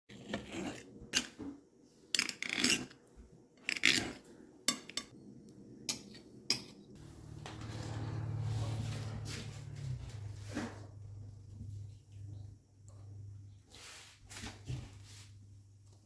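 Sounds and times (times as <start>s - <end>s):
metal utensils clinking on dish: 4.7s - 5.1s.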